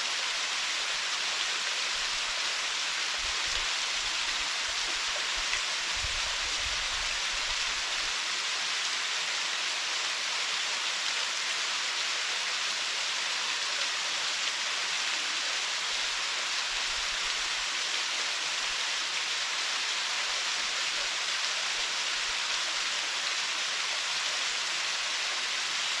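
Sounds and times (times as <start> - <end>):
waterfall splashing into pool: 0.4 - 12.2.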